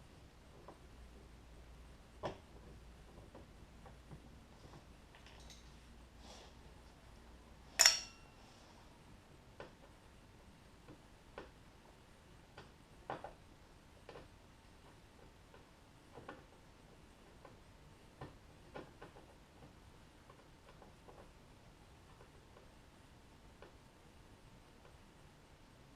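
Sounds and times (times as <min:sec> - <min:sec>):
hand tools clicking and tapping: 0:07.8 - 0:08.3
metallic clink with ring: 0:07.8 - 0:08.4.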